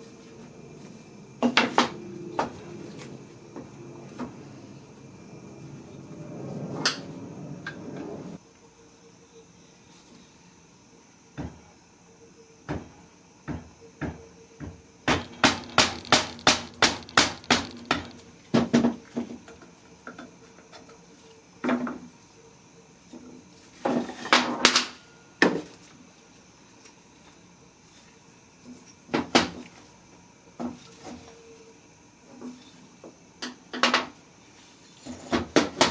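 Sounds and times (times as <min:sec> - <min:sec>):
hammer striking metal: 0:15.1 - 0:18.2.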